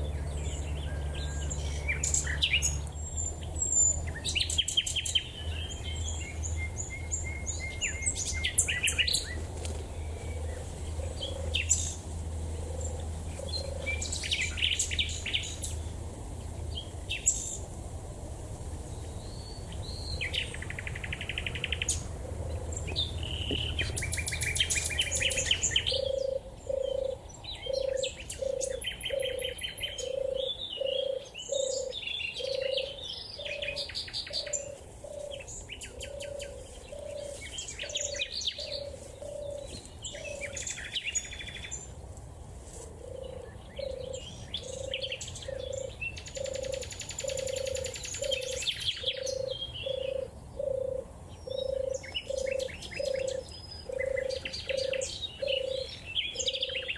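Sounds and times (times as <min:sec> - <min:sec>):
small birds chirping: 0:00.0 - 0:17.8, 0:18.8 - 0:56.9
turtle dove purring: 0:20.2 - 0:40.6, 0:42.9 - 0:56.9.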